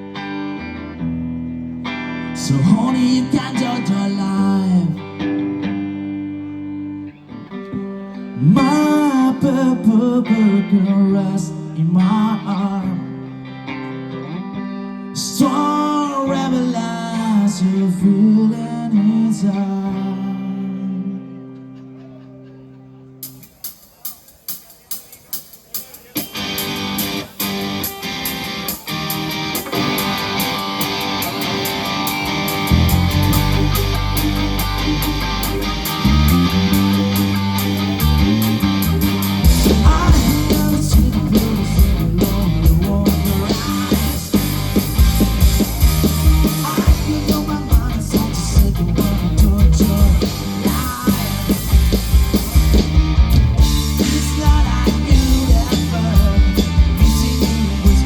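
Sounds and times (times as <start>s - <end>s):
rock band with drums: 0.0s - 58.0s
rock guitar: 0.0s - 58.0s
heavy bass: 27.0s - 58.0s.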